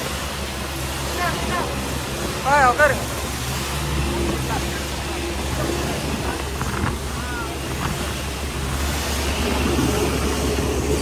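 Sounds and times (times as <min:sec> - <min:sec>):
motorboat engine running: 0:00.0 - 0:11.0
faint voices: 0:01.0 - 0:08.8.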